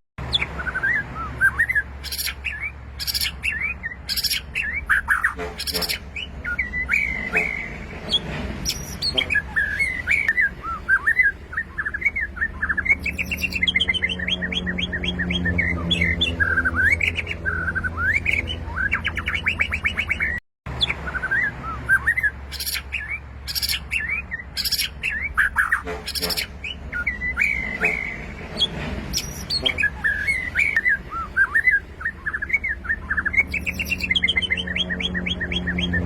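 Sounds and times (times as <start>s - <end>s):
bird singing whistles and trills: 0.3s - 36.0s.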